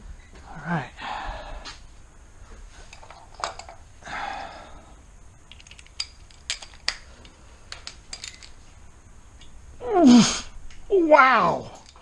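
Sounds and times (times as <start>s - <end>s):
metal tools clinking: 2.8s - 3.9s, 5.5s - 8.7s, 11.6s - 12.0s.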